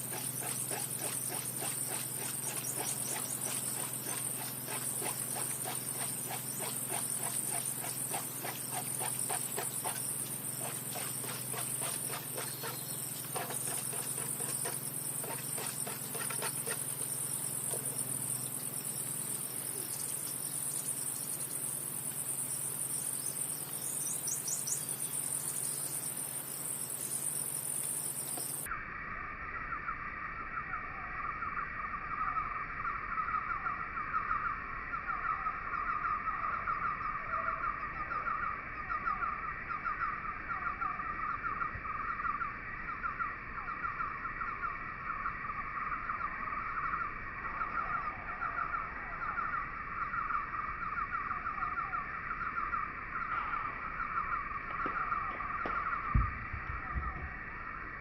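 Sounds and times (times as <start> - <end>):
rapid repeating pulses: 0.0 - 19.3
insects chirring: 0.0 - 58.0.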